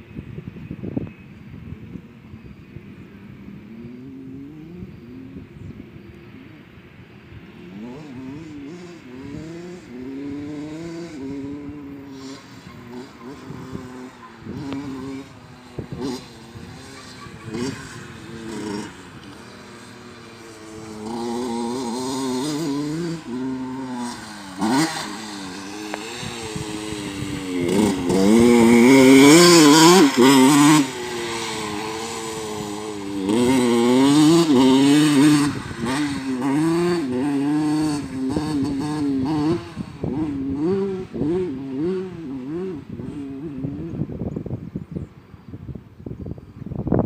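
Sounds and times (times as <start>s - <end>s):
motocross bike engine revving: 7.5s - 44.4s.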